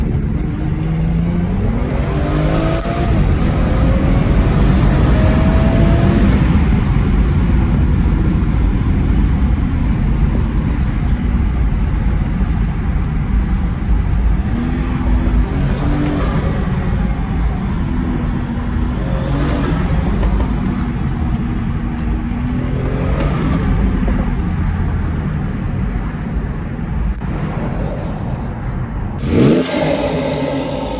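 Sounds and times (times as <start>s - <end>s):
car engine revving: 0.3s - 11.7s, 13.6s - 24.1s, 27.1s - 30.9s
turbo whooshes and huffs: 27.2s - 30.9s.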